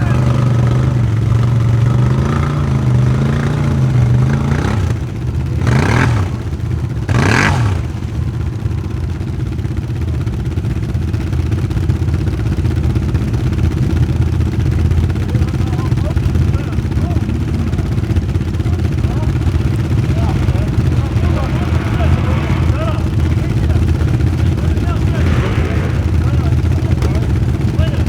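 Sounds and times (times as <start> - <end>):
atv engine revving: 0.0 - 28.0
low engine rumble: 0.0 - 28.0
loud rushing bursts: 17.1 - 28.0.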